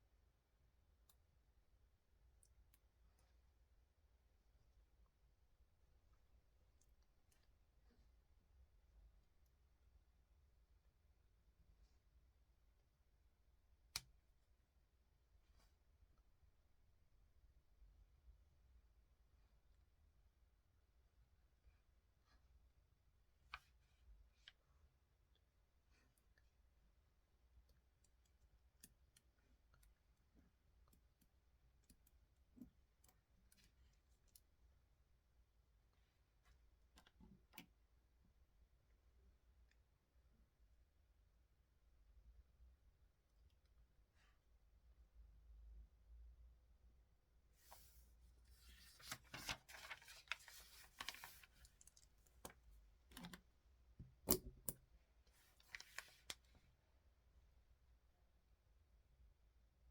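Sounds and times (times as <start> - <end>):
rustling and scraping at desk: 47.6 - 52.6.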